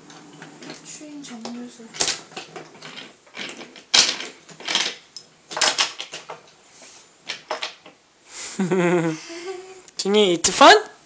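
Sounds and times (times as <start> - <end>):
toy train pieces clattering: 2.0 - 5.0.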